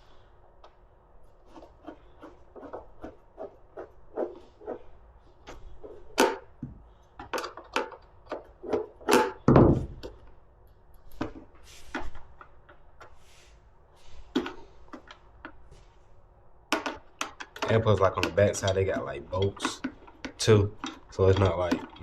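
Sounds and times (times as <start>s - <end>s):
clicks and knocks on plastic: 16.7s - 22.0s.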